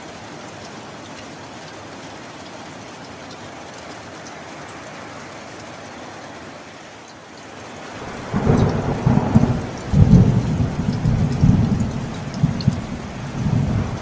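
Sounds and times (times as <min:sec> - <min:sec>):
steady rain: 0:00.0 - 0:14.0
rolling thunder: 0:08.0 - 0:14.0.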